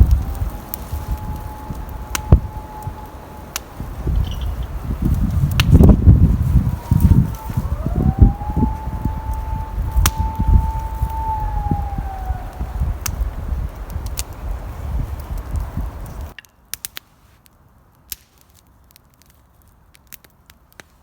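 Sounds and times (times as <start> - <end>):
long wailing tone: 0.0 - 15.9
strong wind buffeting microphone: 0.0 - 16.4.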